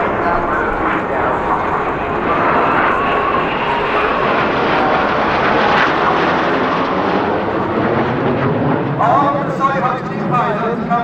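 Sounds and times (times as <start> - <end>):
jets flying past: 0.0 - 11.0.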